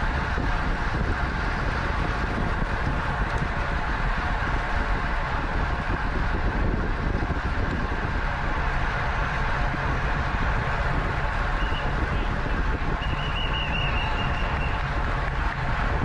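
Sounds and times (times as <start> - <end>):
wind rush on microphone: 0.0 - 16.0.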